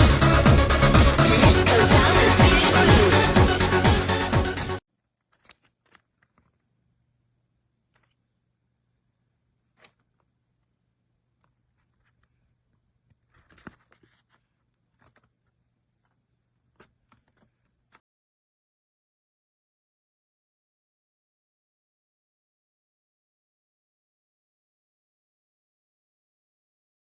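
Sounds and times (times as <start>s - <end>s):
music: 0.0s - 4.8s.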